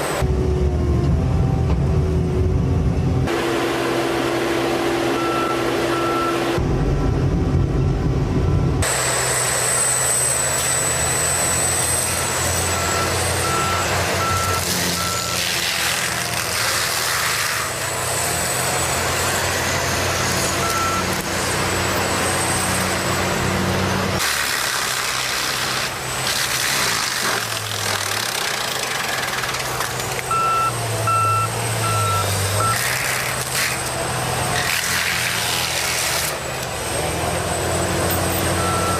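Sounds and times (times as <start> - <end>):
heavy machinery engines: 0.0 - 38.9
reversing alarm beeping: 5.1 - 6.6, 8.4 - 15.4, 20.1 - 21.2, 30.3 - 32.8, 37.6 - 38.9.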